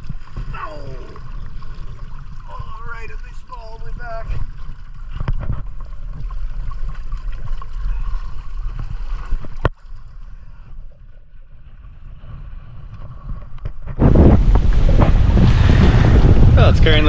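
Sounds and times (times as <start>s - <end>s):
water rushing along hull: 0.0s - 17.0s
wind buffeting microphone: 12.7s - 17.0s.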